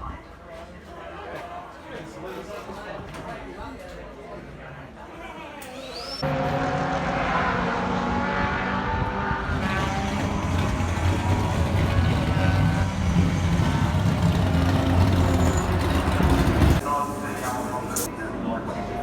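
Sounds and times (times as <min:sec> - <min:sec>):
racing car engine running: 0:06.2 - 0:16.8.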